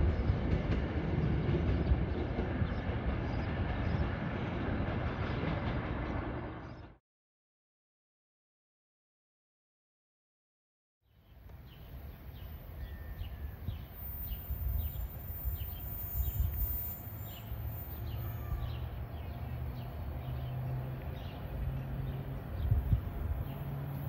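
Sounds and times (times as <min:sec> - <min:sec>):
train engine hum: 0:00.0 - 0:07.0, 0:11.4 - 0:24.0
bird chirping: 0:11.1 - 0:23.8.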